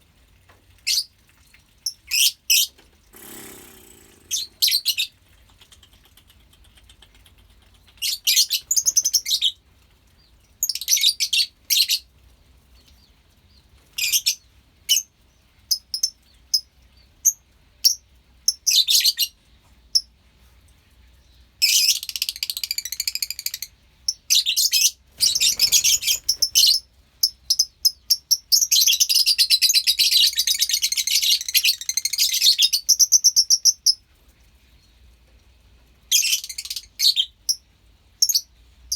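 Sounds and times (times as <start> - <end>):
lovebirds chirping shrilly: 3.2 - 5.1.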